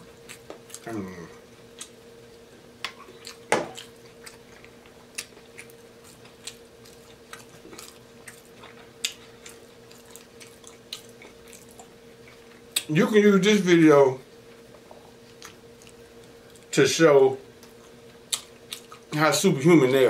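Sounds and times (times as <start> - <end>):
steady low hum: 0.0 - 20.0
chewing with wet smacks: 0.1 - 0.9, 1.7 - 2.0, 2.8 - 12.9, 15.1 - 16.7, 17.6 - 19.2.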